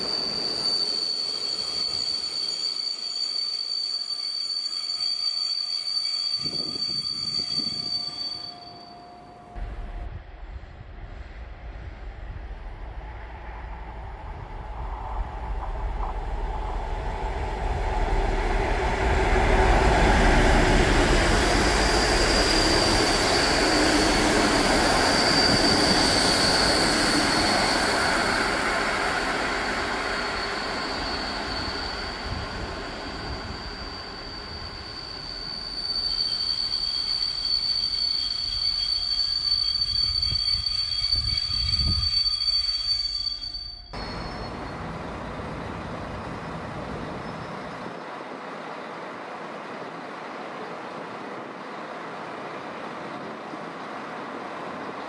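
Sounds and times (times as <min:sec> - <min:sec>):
high wheel squeal: 0:00.0 - 0:09.6, 0:17.8 - 0:49.1
train wheels rumbling on rail: 0:00.0 - 0:55.0.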